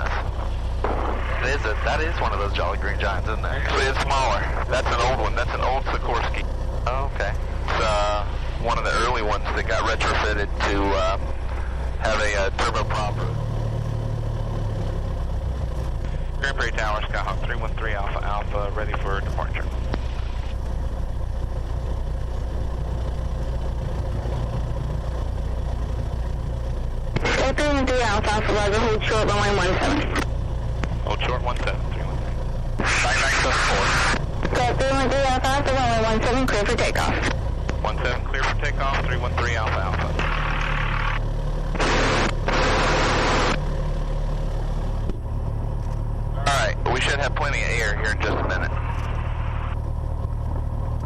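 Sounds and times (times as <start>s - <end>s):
small plane engine idling: 0.0s - 51.0s.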